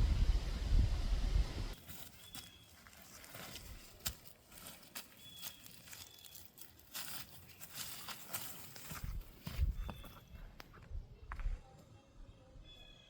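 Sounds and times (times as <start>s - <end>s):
crackles and rustles: 1.8s - 11.6s.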